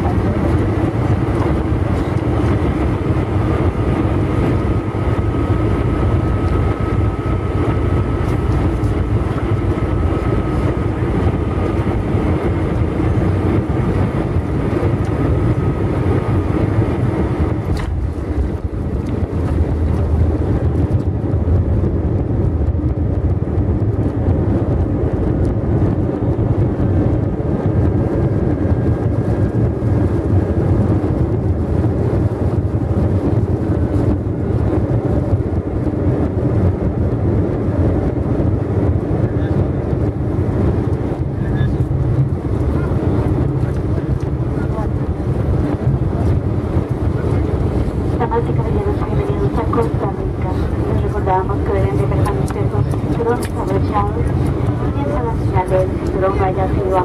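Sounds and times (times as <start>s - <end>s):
jet engine and airflow rush: 0.0s - 57.0s
faint steady whine: 41.3s - 57.0s.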